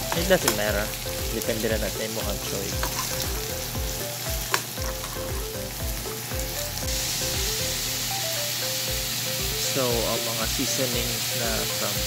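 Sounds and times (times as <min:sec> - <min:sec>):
fish sizzling in a frying pan: 0:00.0 - 0:12.0
metal spoon stirring: 0:02.8 - 0:03.3, 0:04.4 - 0:05.5.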